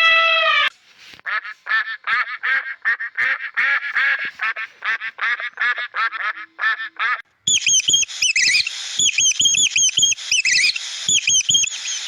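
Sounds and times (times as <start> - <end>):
duck quacking: 1.3 - 7.3
small animal squeaky chirps: 7.5 - 12.0.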